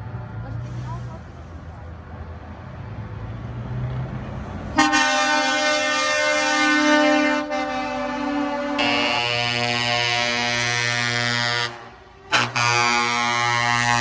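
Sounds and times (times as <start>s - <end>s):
truck engine rumbling: 0.0s - 14.0s
truck air horn blast: 4.8s - 14.0s.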